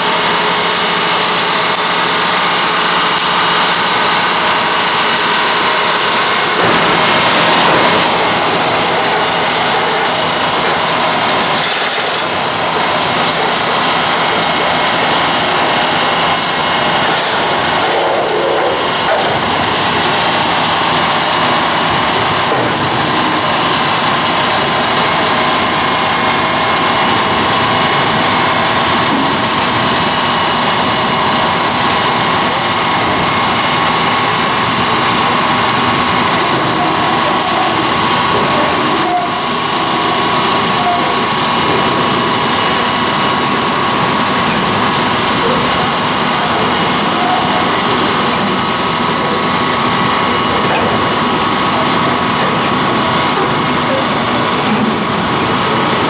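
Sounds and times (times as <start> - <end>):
engine humming: 0.0 - 56.0
train wheels clattering on rail: 4.1 - 26.6.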